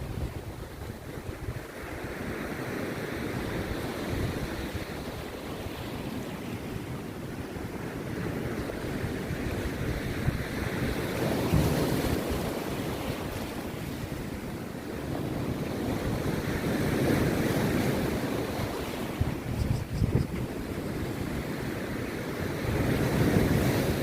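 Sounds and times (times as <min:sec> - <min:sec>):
sea surf breaking on beach: 0:00.0 - 0:24.0
wind buffeting microphone: 0:00.0 - 0:24.0.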